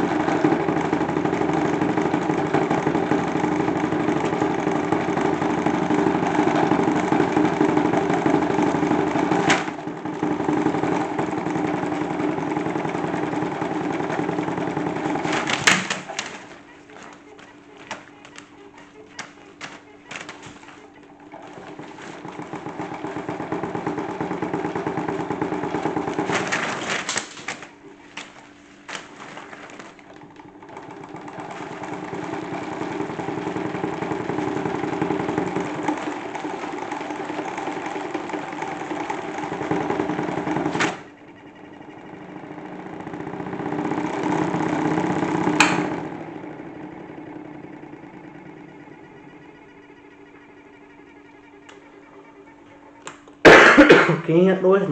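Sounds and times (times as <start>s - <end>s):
toy washing machine motor whirring: 0.0s - 53.5s.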